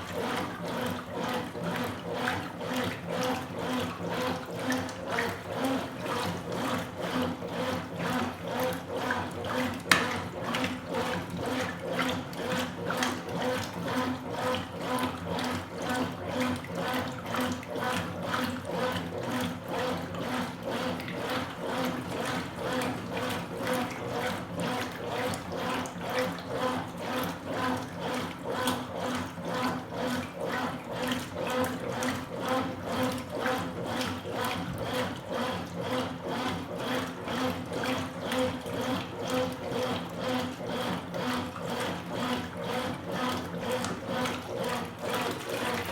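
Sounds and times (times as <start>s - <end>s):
washing machine agitator swishing: 0.0s - 45.9s
water sloshing: 43.3s - 45.9s.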